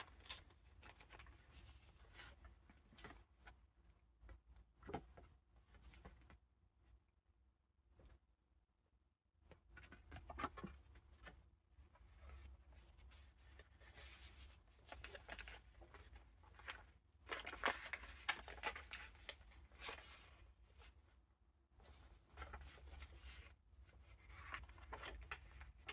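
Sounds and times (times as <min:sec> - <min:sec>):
paper pages rustling: 0:12.3 - 0:21.0, 0:21.8 - 0:25.9.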